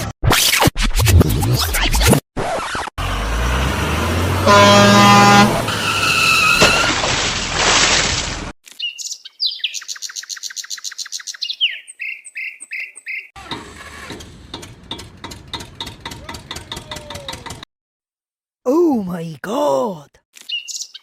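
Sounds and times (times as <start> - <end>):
vehicle noise with pitched blare: 2.4 - 7.0, 13.4 - 17.6
rapid chirping and tweets: 8.8 - 13.3, 20.4 - 21.0.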